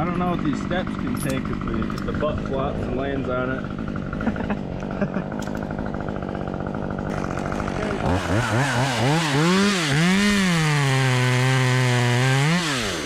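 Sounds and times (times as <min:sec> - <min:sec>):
chainsaw idling and revving: 0:00.0 - 0:13.0.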